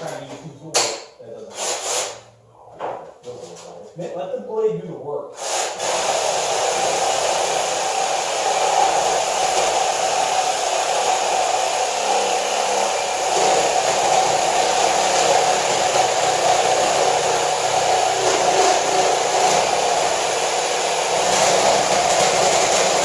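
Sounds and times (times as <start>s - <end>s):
saw cutting through metal: 5.4s - 23.0s.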